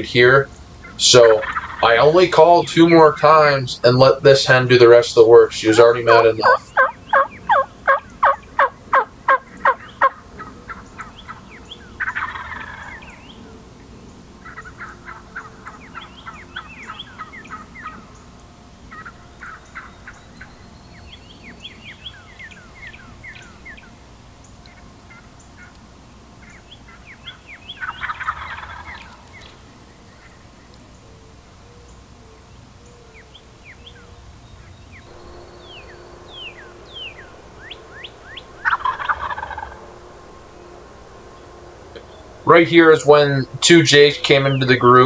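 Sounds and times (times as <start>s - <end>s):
turkey hen clucking rapidly: 0.0s - 13.4s, 14.4s - 18.2s, 18.9s - 20.5s, 26.4s - 30.3s, 35.4s - 40.6s
turkeys gobbling: 0.0s - 13.6s, 14.4s - 45.0s
turkey hen yelping: 0.8s - 2.2s, 5.7s - 13.4s, 14.4s - 18.2s, 18.9s - 20.5s, 24.6s - 25.8s, 26.4s - 29.6s, 35.2s - 41.4s.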